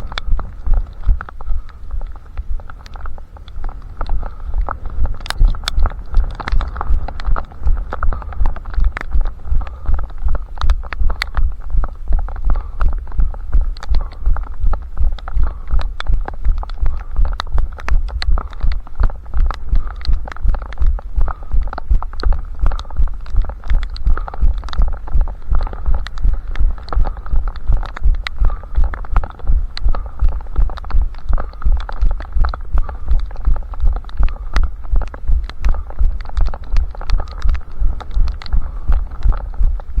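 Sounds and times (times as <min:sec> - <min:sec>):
small clicks and rattles: 0:00.0 - 0:40.0.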